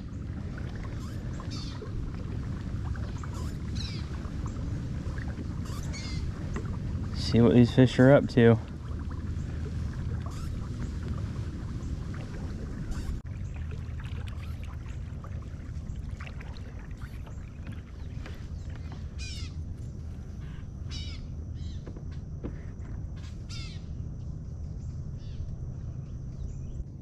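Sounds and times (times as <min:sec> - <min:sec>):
kayak moving through water: 0:00.0 - 0:27.0.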